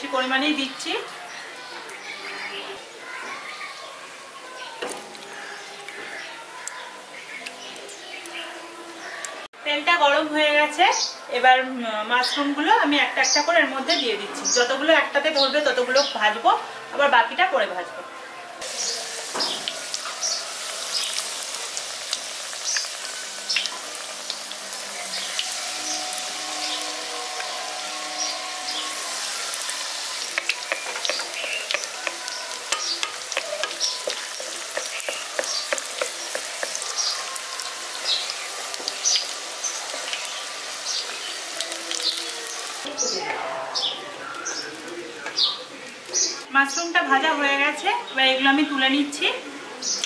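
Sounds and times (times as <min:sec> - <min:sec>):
deep-frying sizzle and pops: 0:18.6 - 0:43.4
wooden spatula stirring: 0:29.2 - 0:38.1.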